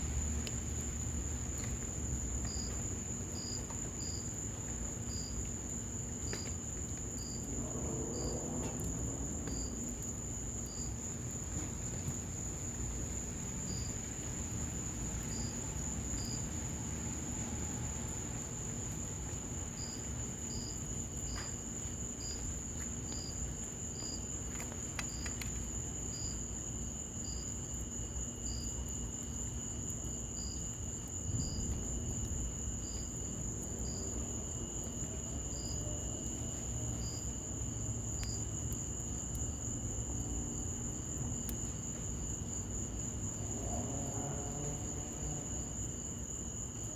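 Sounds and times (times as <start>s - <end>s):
faint crackles: 0.0s - 26.4s
cricket chirping: 0.0s - 46.9s
cricket trilling: 0.0s - 46.9s
low rush of fire and rain: 0.0s - 46.9s.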